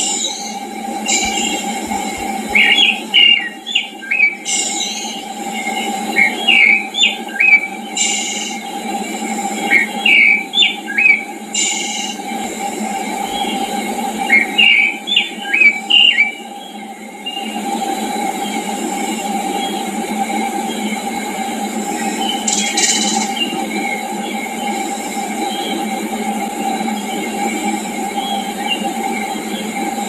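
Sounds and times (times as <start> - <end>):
songbird singing: 0.0 - 12.4, 13.0 - 17.6, 21.8 - 24.8
high hissing buzzes: 0.0 - 30.0
steady rushing background noise: 0.0 - 30.0.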